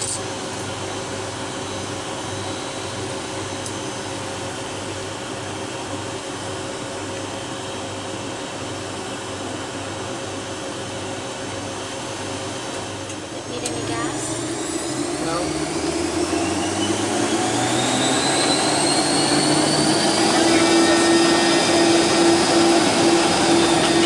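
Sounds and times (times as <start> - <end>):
jet engine rushing hiss: 14.1 - 24.0.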